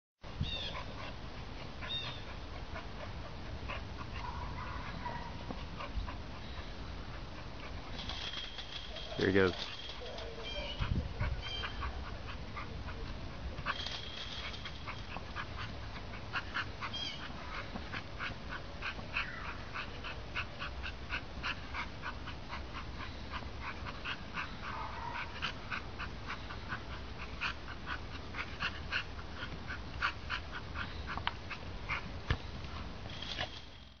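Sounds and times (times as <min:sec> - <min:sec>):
dog whining: 0:08.9 - 0:12.0.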